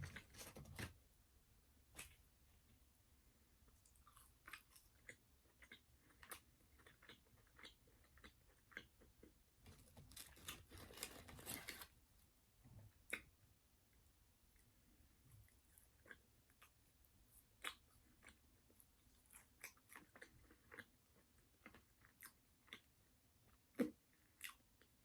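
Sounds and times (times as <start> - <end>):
chewing crunchy fried chicken: 3.8 - 11.9, 15.2 - 25.0.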